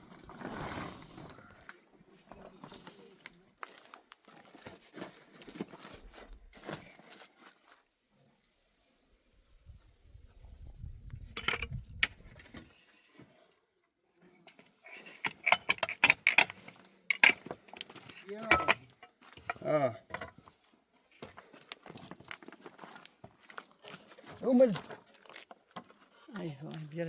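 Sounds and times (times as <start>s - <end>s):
cricket chirping: 7.6s - 12.6s
knocks and clattering: 15.2s - 20.4s.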